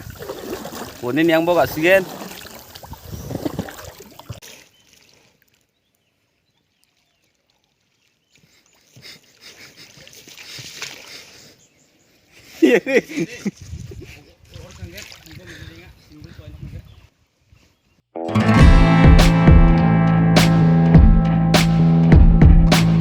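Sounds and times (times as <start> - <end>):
water trickling and splashing: 0.0 - 11.6, 13.4 - 15.8.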